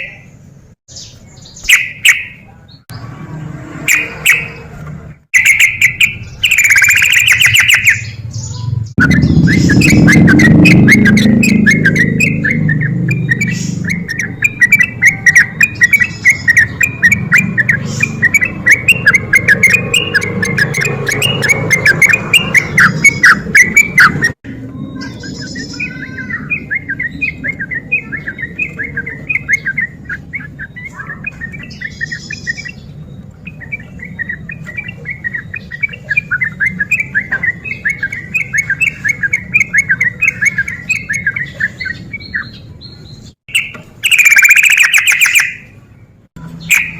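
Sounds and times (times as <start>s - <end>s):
bulbul singing bubbly phrases: 5.4s - 42.6s.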